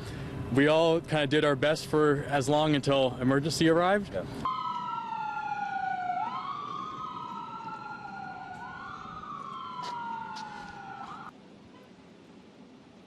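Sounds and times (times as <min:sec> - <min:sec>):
emergency sirens wailing: 0:04.4 - 0:11.3.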